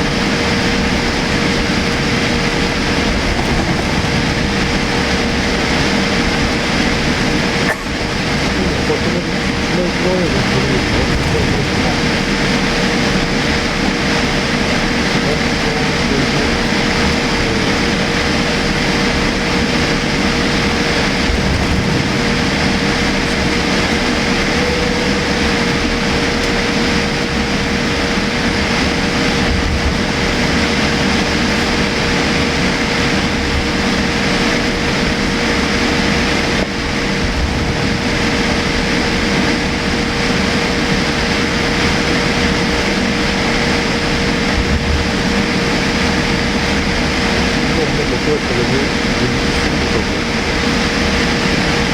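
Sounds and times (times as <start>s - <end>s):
airliner cabin noise: 0.0s - 51.9s.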